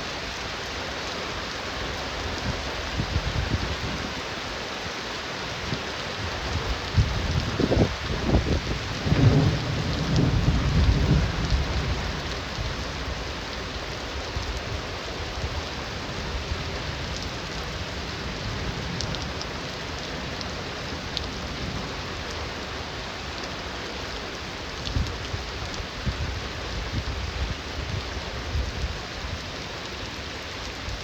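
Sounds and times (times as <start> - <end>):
heavy rain: 0.0 - 31.0
thunder rumbling: 6.3 - 14.6.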